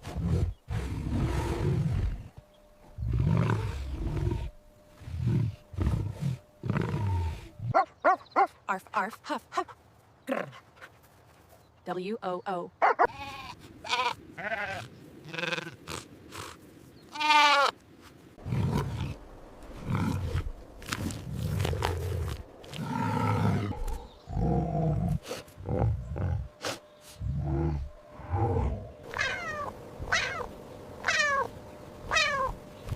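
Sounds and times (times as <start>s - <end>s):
low deep animal grunts: 3.0s - 7.8s, 21.1s - 29.1s.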